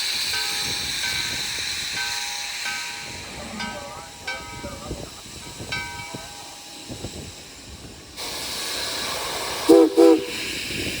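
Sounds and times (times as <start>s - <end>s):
steam hissing: 0.0s - 11.0s
steam whistle blasts: 9.6s - 10.6s.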